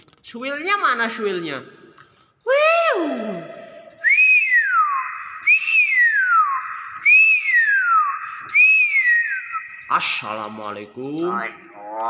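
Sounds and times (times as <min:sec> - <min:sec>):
myna whistling: 0:03.9 - 0:10.6.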